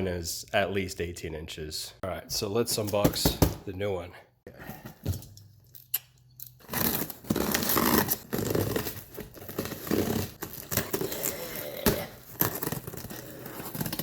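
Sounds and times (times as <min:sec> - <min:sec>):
cardboard box being torn open: 0:06.6 - 0:14.0.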